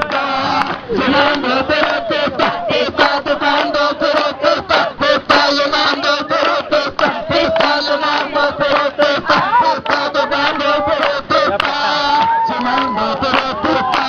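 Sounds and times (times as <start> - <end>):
group chanting: 0.0 - 14.0.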